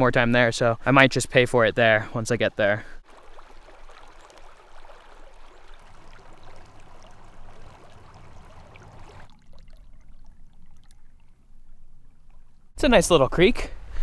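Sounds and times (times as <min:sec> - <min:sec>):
creek flowing over rocks: 0:03.0 - 0:11.0.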